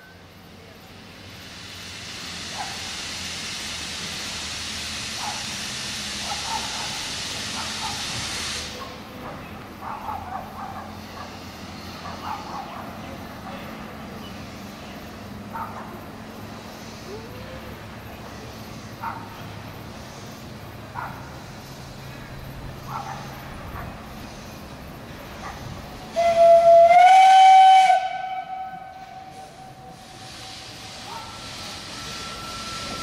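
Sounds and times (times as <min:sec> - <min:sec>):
steam locomotive hissing steam: 0:00.0 - 0:33.0.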